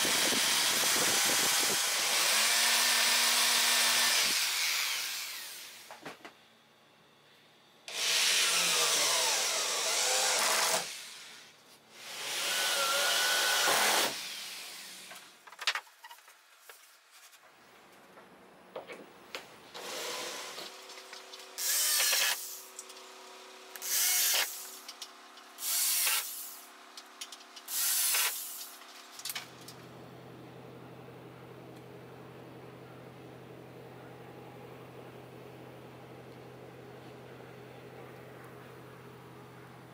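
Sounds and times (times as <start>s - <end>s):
power tool cutting wood: 0.0s - 5.9s, 7.9s - 15.2s, 19.8s - 22.8s, 23.7s - 24.8s, 25.6s - 26.7s, 27.7s - 28.7s.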